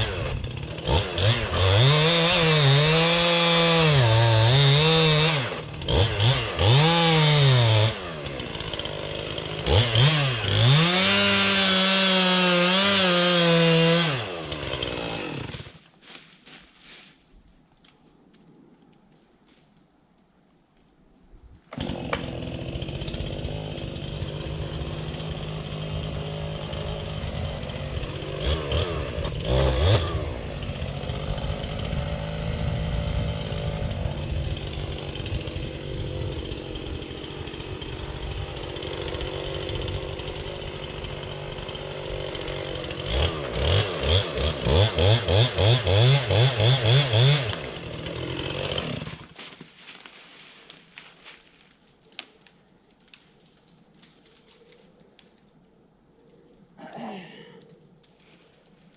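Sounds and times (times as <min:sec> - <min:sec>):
chainsaw cutting tree: 0:00.0 - 0:15.9, 0:21.6 - 0:51.4.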